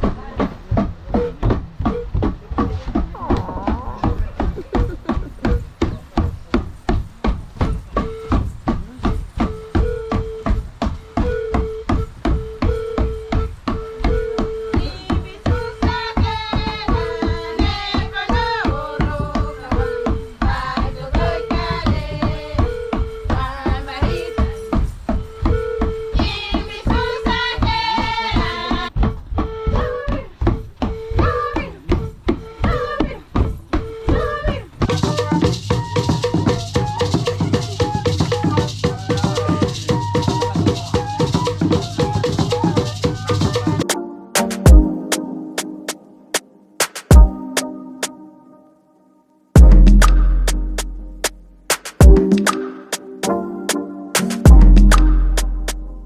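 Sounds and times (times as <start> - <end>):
music with drums and rattles: 0.0 - 29.6, 31.8 - 48.1, 49.6 - 56.0
background music with steady beat: 43.7 - 48.8, 49.6 - 56.0.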